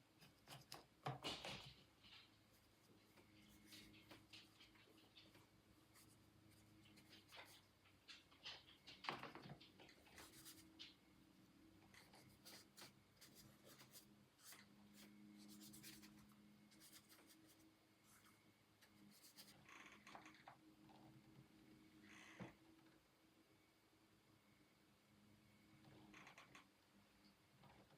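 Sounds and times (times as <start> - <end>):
faint low hum: 0.0 - 27.9
art tools scratching on paper: 12.0 - 17.6.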